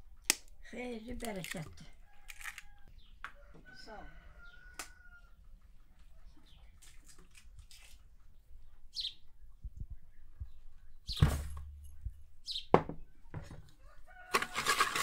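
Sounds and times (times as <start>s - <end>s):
faint bird chirps: 8.9s - 14.0s.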